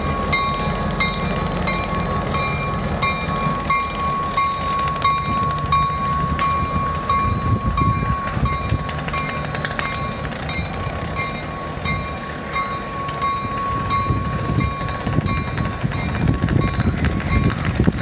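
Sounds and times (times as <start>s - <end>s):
steady high squeal: 0.0s - 18.0s
train coaches rumbling and clattering: 0.0s - 18.0s.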